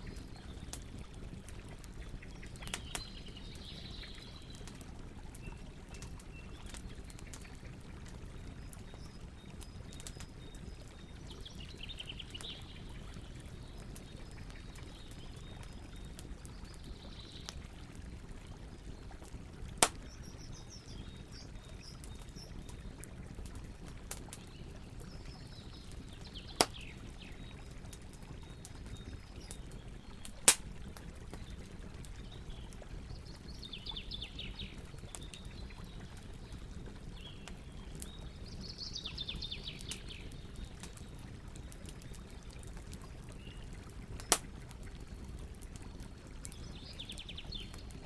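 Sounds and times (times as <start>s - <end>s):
campfire burning: 0.0s - 48.0s
sharp wood pops: 44.3s - 44.5s.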